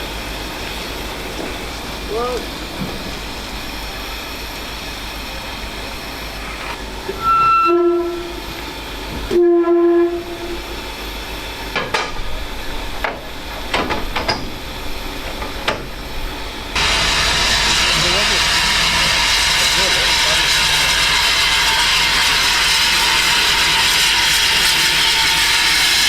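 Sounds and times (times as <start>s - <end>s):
steam locomotive whistle: 7.1s - 8.6s, 9.2s - 10.8s, 16.8s - 26.0s.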